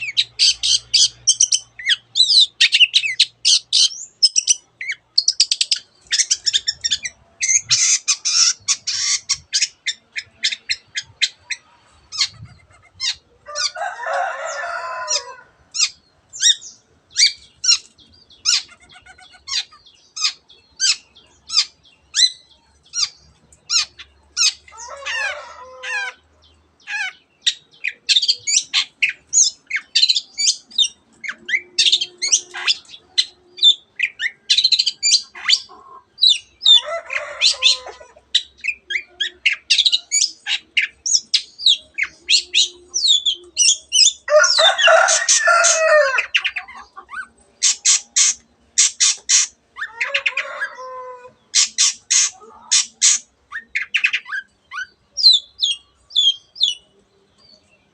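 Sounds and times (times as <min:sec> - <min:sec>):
harsh rasping bird call: 0:00.0 - 0:11.4, 0:27.8 - 0:54.9
bird chirps and trills: 0:00.0 - 0:13.8, 0:14.4 - 0:57.9.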